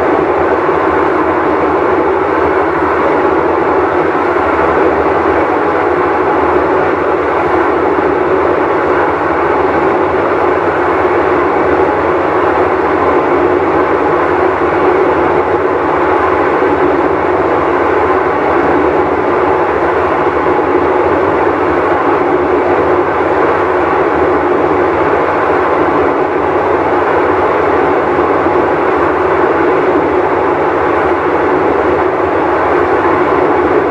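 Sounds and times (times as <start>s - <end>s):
washing machine running: 0.0s - 33.9s.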